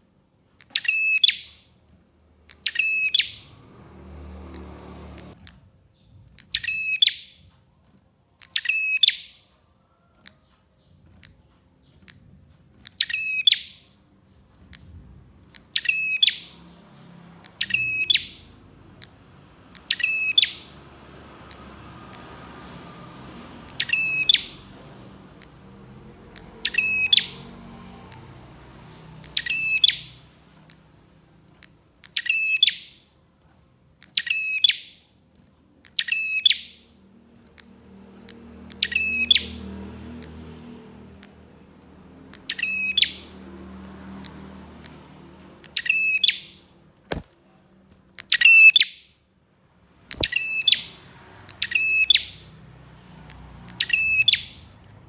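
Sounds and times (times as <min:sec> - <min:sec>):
bird trilling song: 0:00.6 - 0:07.5, 0:08.4 - 0:22.7, 0:23.4 - 0:33.2, 0:33.9 - 0:35.2, 0:35.8 - 0:47.3, 0:48.1 - 0:49.2, 0:50.1 - 0:55.0
sharp clicks: 0:00.6 - 0:09.2, 0:10.2 - 0:34.6, 0:43.8 - 0:48.6, 0:50.1 - 0:51.9.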